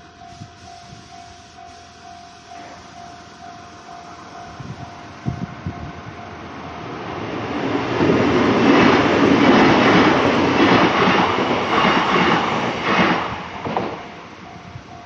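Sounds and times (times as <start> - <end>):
crossing warning bell ringing: 0.0 - 8.0, 14.2 - 15.0
electric train wheels clattering: 0.0 - 15.0.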